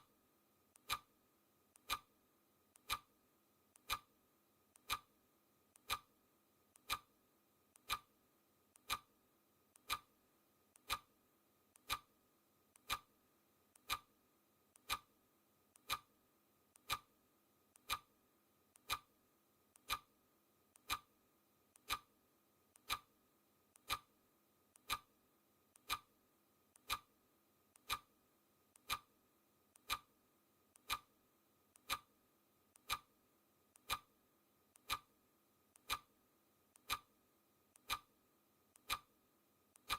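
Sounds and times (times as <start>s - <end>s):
clock ticking: 0.8s - 1.1s, 1.8s - 2.1s, 2.8s - 3.1s, 3.8s - 4.1s, 4.8s - 5.1s, 5.8s - 6.1s, 6.8s - 7.1s, 7.8s - 8.1s, 8.8s - 9.1s, 9.8s - 10.2s, 10.8s - 11.1s, 11.8s - 12.1s, 12.8s - 13.1s, 13.8s - 14.1s, 14.8s - 15.1s, 15.8s - 16.1s, 16.8s - 17.2s, 17.8s - 18.2s, 18.8s - 19.1s, 19.8s - 20.2s, 20.8s - 21.1s, 21.8s - 22.1s, 22.8s - 23.2s, 23.8s - 24.2s, 24.8s - 25.2s, 25.8s - 26.2s, 26.8s - 27.2s, 27.8s - 28.2s, 28.8s - 29.2s, 29.8s - 30.2s, 30.8s - 31.2s, 31.8s - 32.2s, 32.8s - 33.2s, 33.8s - 34.2s, 34.8s - 35.2s, 35.8s - 36.2s, 36.8s - 37.2s, 37.8s - 38.2s, 38.8s - 39.2s.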